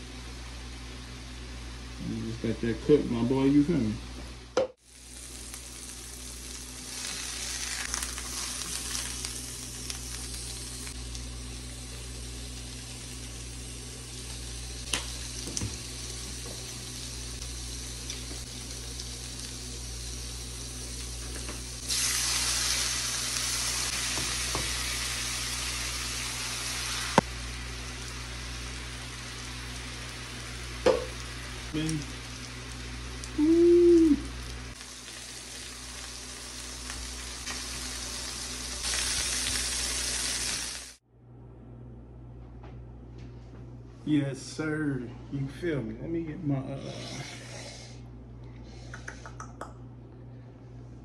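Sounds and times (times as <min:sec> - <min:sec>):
meat sizzling in skillets: 0:04.8 - 0:41.0
low hum: 0:41.1 - 0:51.0.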